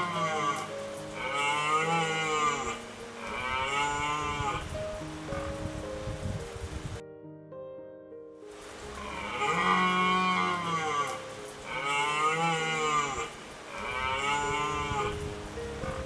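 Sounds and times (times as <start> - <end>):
cow mooing: 0.0 - 4.7, 9.0 - 15.2, 15.8 - 16.0.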